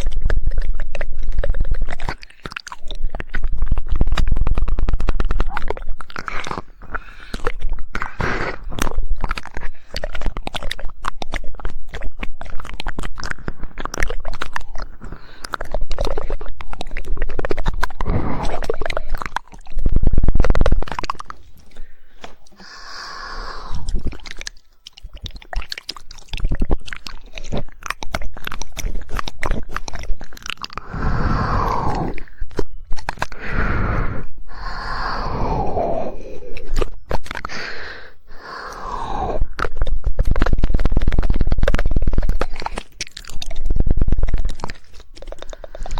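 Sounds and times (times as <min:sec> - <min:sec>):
tongue clicks: 0:00.0 - 0:45.9
wet mouth noises: 0:00.0 - 0:45.9.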